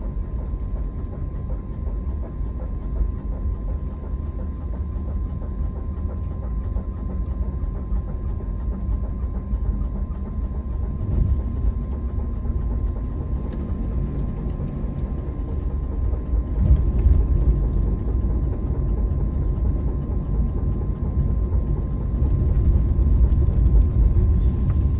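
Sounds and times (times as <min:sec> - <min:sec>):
van road rumble: 0:16.4 - 0:18.1, 0:22.1 - 0:24.9.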